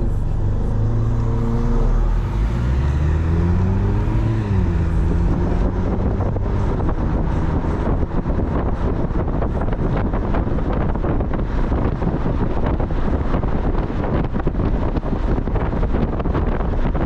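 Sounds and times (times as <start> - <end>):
car road and engine noise: 0.0 - 17.0
wind buffeting microphone: 0.8 - 17.0.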